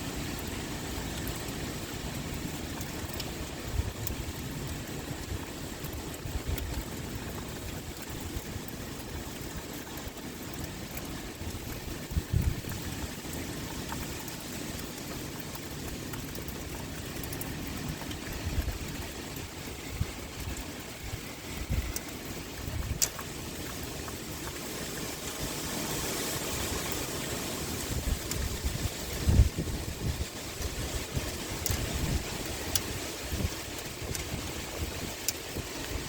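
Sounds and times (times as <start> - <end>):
steady rain pouring: 0.0 - 36.0
wind gusting rumbles: 17.7 - 24.4, 27.6 - 36.0.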